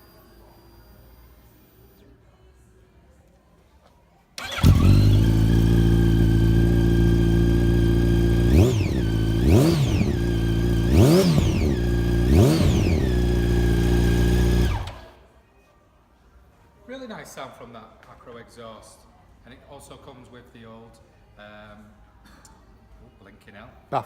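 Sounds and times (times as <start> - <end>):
motorcycle engine idling and revving: 4.4 - 15.2.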